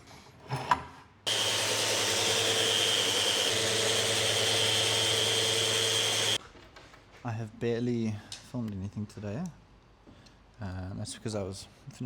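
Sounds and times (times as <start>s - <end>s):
small electric motor whirring: 1.3s - 6.4s.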